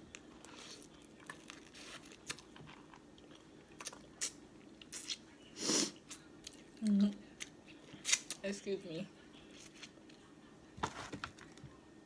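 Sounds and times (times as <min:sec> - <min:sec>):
quiet chewing: 0:06.0 - 0:08.4.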